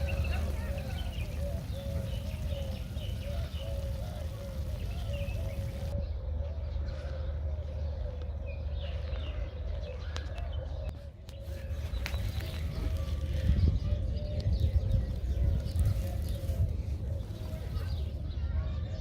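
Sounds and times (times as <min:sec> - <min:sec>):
steady low hum: 0:00.0 - 0:08.8
birds chirping and calling: 0:00.0 - 0:19.0.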